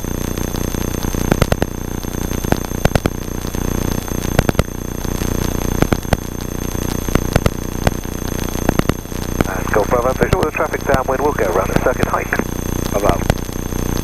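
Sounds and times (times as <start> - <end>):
crackling clicks of interference: 0.0 - 14.0
aircraft engine drone: 9.4 - 13.3.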